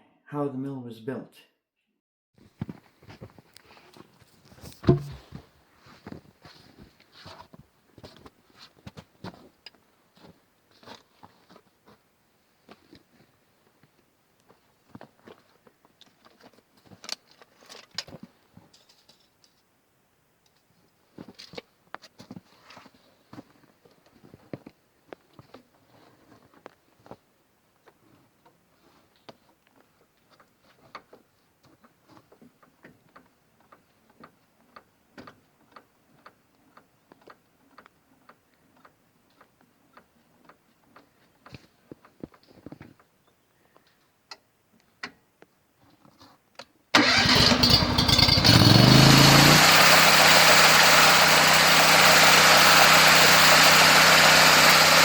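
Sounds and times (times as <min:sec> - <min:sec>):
engine starting and running: 0:04.9 - 0:05.4, 0:47.0 - 0:55.0.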